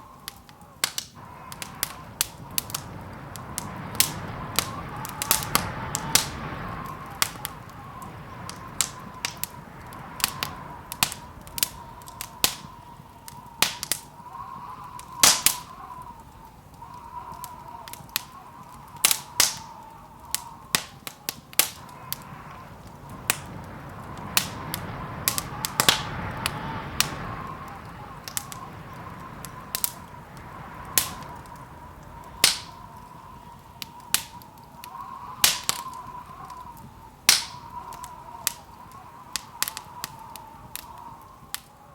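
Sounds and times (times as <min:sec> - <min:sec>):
wood fire crackling and popping: 0:00.0 - 0:41.9.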